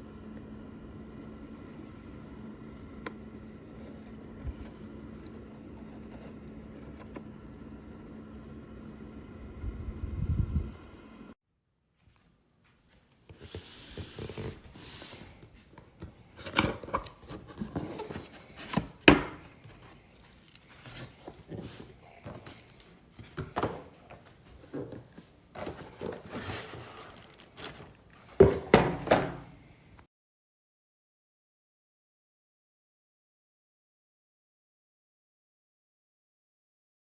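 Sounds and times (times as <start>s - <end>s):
objects knocking and rubbing: 20.7s - 29.5s.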